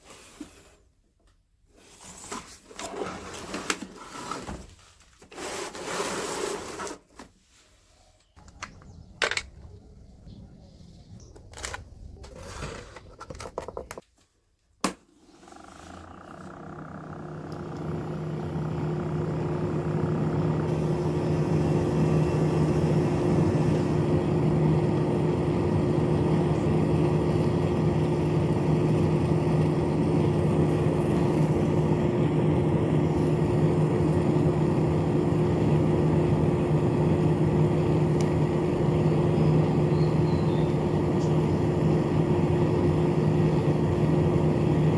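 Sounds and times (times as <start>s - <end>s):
small electric motor humming: 15.3s - 44.9s.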